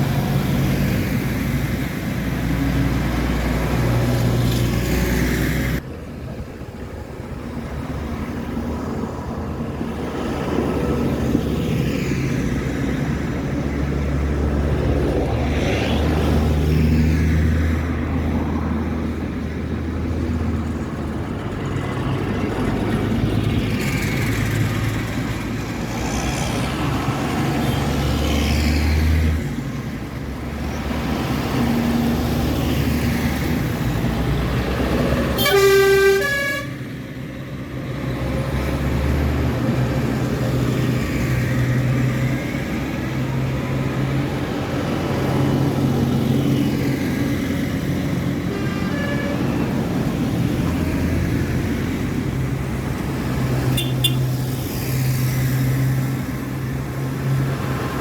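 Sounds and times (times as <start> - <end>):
tractor engines passing: 0.0 - 58.0
horn blast: 35.4 - 36.8.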